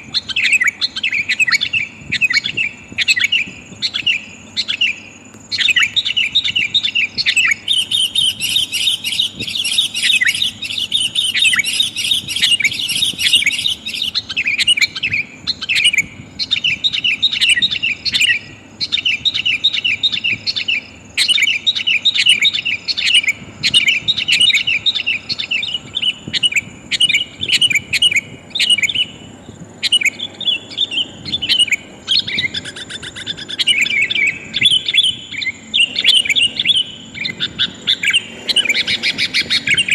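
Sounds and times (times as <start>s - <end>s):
bulbul chirping: 23.0s - 39.9s.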